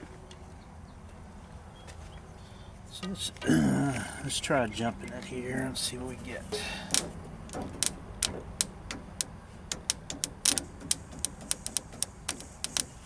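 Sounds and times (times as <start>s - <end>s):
sharp clicks: 6.8s - 13.0s.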